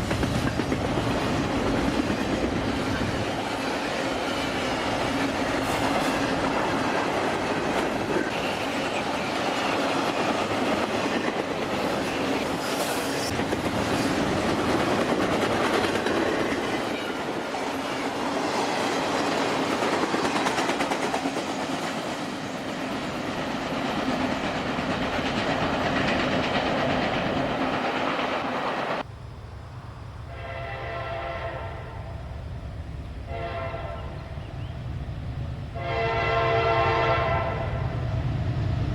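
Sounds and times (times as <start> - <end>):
train wheels clattering on rails: 0.0 - 29.1
locomotive air horn blasts: 30.3 - 32.2, 33.3 - 34.3, 35.8 - 37.9.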